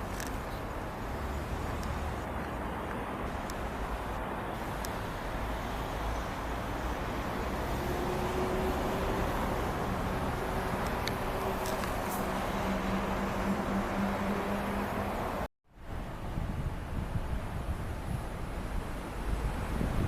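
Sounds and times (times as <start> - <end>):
vehicle engine hum: 0.0 - 15.5
road traffic noise: 0.0 - 20.0.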